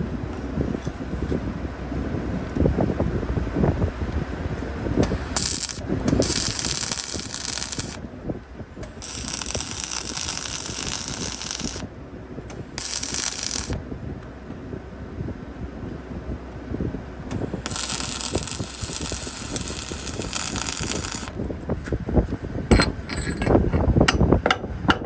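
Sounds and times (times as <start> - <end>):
welding arc crackling: 5.0 - 8.0, 8.8 - 11.9, 12.5 - 13.8, 17.3 - 21.4.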